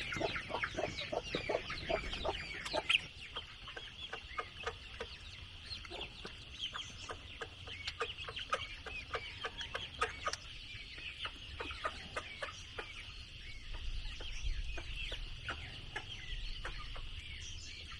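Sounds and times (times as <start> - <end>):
steady high hum: 0.0 - 7.8
chickens clucking: 0.0 - 17.9.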